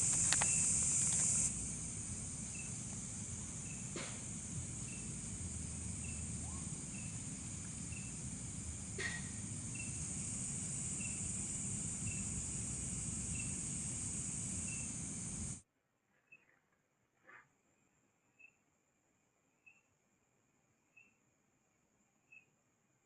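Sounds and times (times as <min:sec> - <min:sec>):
sharp click: 0:00.0 - 0:01.5
insect chirping: 0:00.0 - 0:15.6
insects buzzing: 0:00.0 - 0:15.6.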